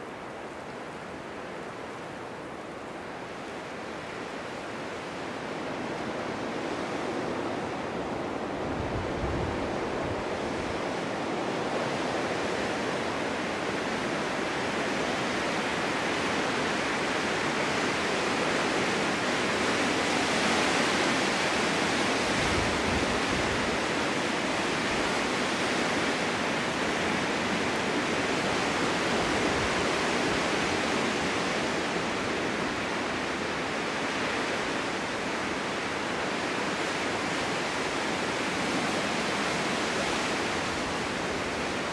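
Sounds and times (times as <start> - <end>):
strong wind blowing: 5.4 - 41.9
wind buffeting microphone: 5.9 - 12.6, 19.8 - 33.4.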